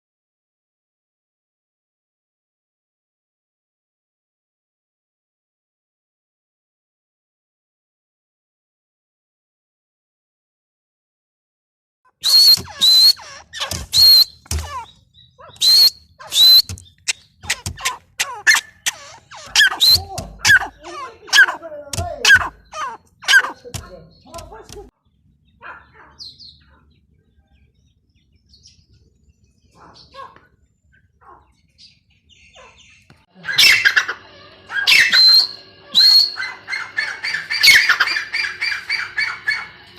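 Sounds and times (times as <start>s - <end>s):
bird shrill squeaky calls: 12.2s - 24.3s, 31.8s - 39.9s.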